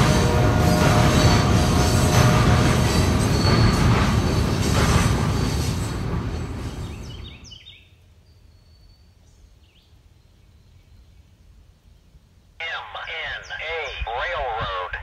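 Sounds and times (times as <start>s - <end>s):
train cars rumbling on trestle: 0.0s - 7.6s
birds chirping: 12.6s - 15.0s.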